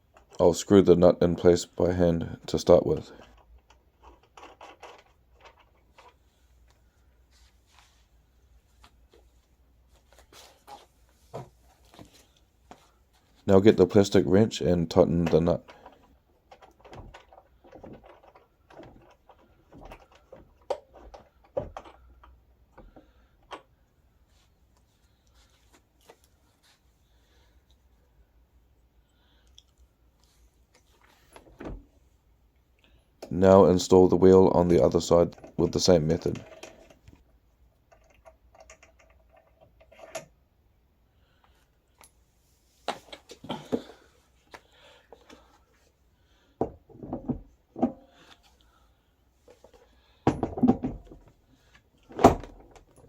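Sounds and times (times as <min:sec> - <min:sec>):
plastic and metal parts rattling: 0:02.9 - 0:06.4, 0:15.0 - 0:23.7, 0:35.0 - 0:37.2, 0:37.8 - 0:40.4.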